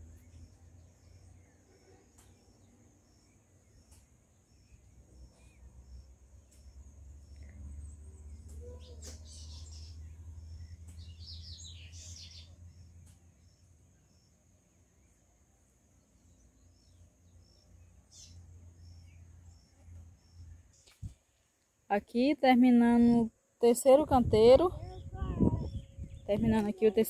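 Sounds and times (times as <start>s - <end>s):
birds chirping: 0.0s - 15.4s, 23.7s - 27.0s.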